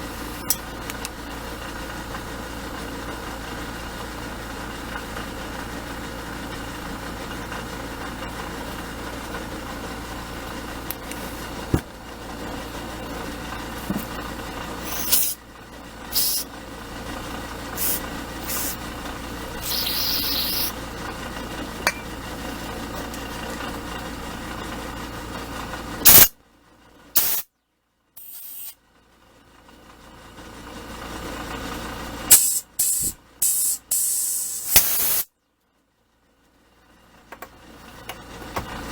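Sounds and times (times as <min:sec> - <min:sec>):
motor hum: 0:00.0 - 0:26.3
compressed air blasts: 0:14.8 - 0:15.4, 0:16.1 - 0:16.4, 0:17.8 - 0:18.8, 0:19.6 - 0:20.8, 0:26.0 - 0:26.3, 0:27.2 - 0:27.4, 0:28.2 - 0:28.8, 0:32.3 - 0:35.3.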